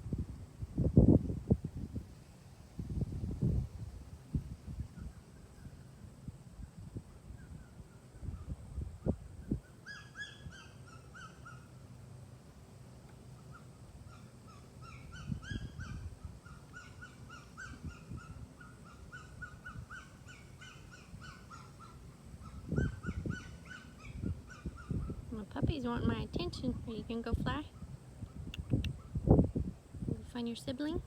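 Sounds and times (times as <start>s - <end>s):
short high-pitched animal calls: 13.5s - 25.2s.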